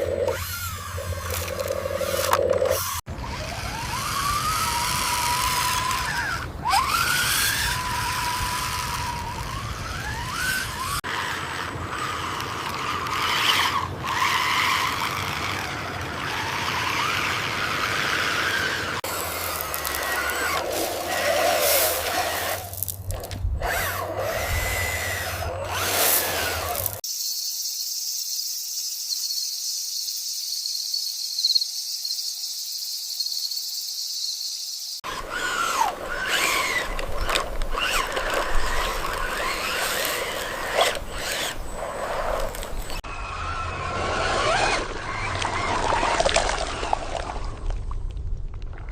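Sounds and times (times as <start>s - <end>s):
toy truck electric motors whining: 0.0s - 27.1s, 35.0s - 47.0s.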